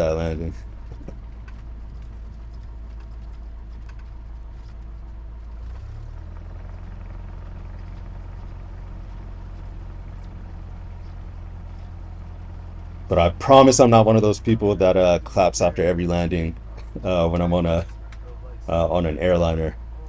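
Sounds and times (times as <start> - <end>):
airplane piston engine droning: 0.0 - 20.0.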